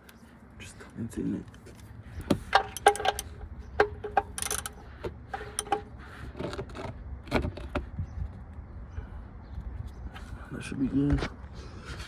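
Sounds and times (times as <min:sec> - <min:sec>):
ratchet wrench clicking: 0:04.3 - 0:04.8.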